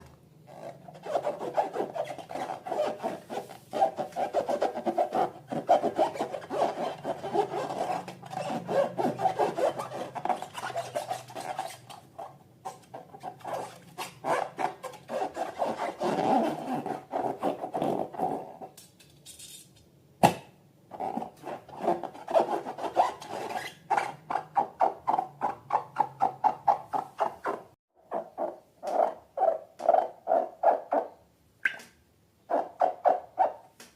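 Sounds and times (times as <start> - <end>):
balloons squeaking when rubbed: 0.5 - 18.6, 20.9 - 29.6.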